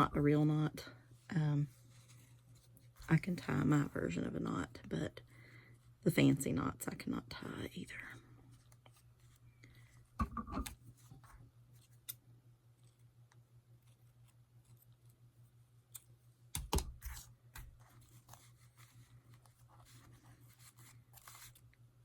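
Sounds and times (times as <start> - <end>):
low steady hum: 0.0 - 22.0
paper and twine rustling: 17.7 - 21.7.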